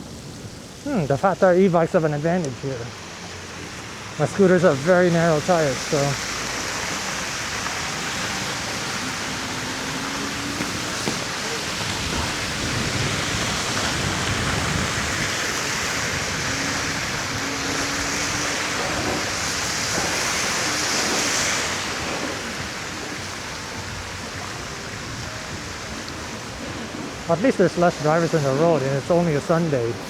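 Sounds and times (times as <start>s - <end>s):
tyre hiss on wet road: 0.0s - 30.0s
wind rushing past: 8.3s - 26.4s.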